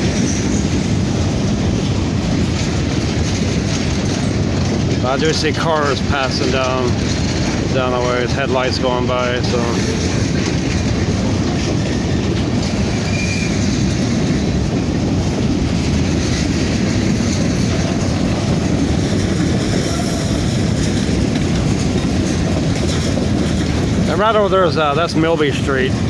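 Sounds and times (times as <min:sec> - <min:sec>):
train wheels rolling on rails: 0:00.0 - 0:26.0.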